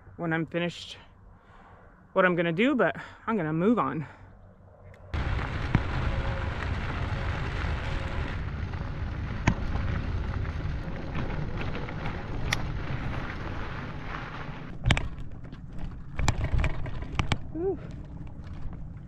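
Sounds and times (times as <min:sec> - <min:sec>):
wind rushing over microphone: 0:05.1 - 0:14.7
tyres rolling on dirt: 0:05.2 - 0:19.0.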